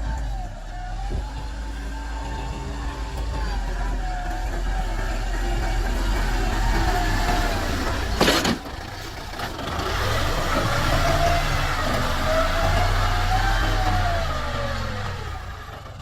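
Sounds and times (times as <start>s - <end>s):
tractor diesel engine revving: 0.0s - 16.0s.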